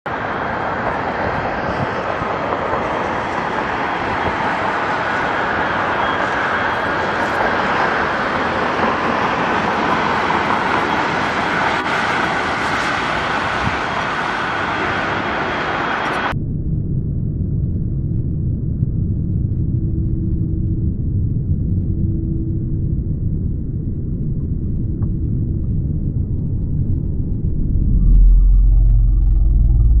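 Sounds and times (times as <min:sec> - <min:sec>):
aircraft rolling on runway roar: 0:00.1 - 0:16.4, 0:23.2 - 0:30.0.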